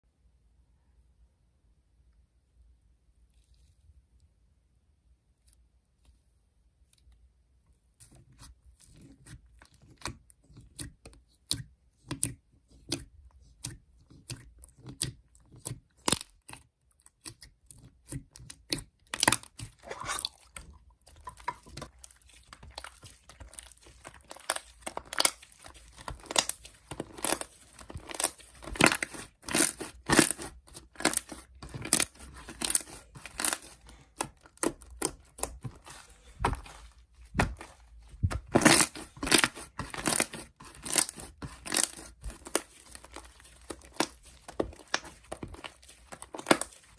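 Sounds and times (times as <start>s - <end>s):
sticky slime popping and crackling: 9.8s - 46.9s.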